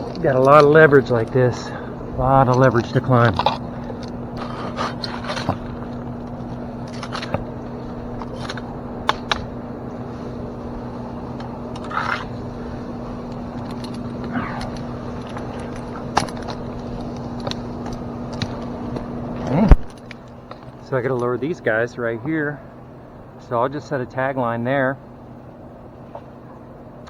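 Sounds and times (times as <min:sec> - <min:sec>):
steady low hum: 0:00.0 - 0:27.0
rope scraping against bark: 0:03.2 - 0:19.6
metal climbing hardware clinking: 0:11.1 - 0:18.7.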